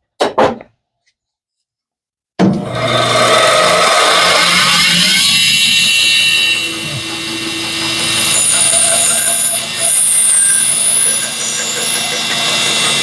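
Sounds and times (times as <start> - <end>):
bandsaw cutting wood: 2.6 - 13.0.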